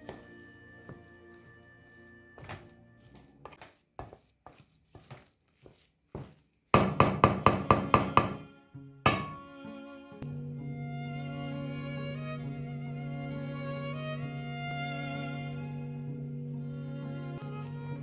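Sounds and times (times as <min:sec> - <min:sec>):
kitchen utensil knocks: 0:06.8 - 0:08.4, 0:09.1 - 0:09.5
ringing clink: 0:09.1 - 0:09.6.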